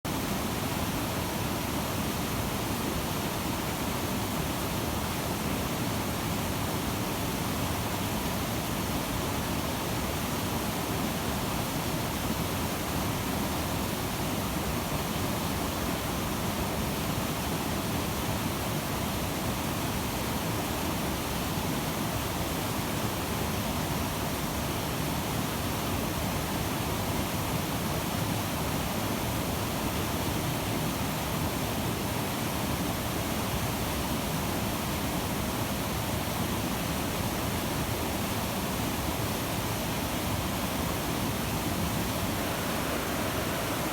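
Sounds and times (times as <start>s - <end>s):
river rushing: 41.3s - 43.9s.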